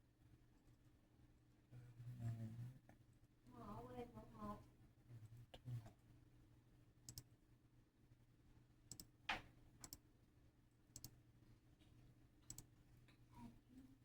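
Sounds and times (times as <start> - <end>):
faint sharp clicks: 7.1 - 7.3, 11.0 - 11.2, 12.5 - 13.2.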